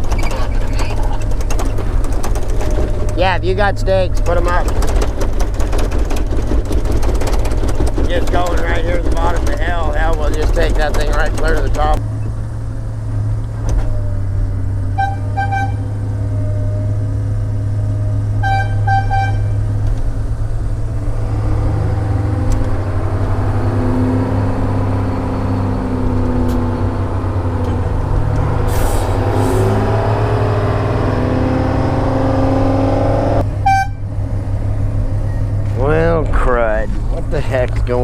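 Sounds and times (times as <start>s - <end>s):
heavy diesel engine running: 0.0s - 38.0s
short high horn toots: 15.0s - 15.9s, 18.4s - 19.6s, 33.6s - 34.1s.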